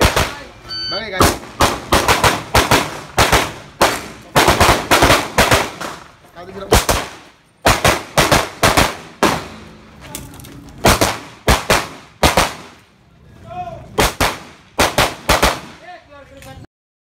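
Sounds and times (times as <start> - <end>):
pistol shots with echo: 0.0 - 6.0, 6.7 - 9.7, 10.8 - 12.8, 14.0 - 15.8.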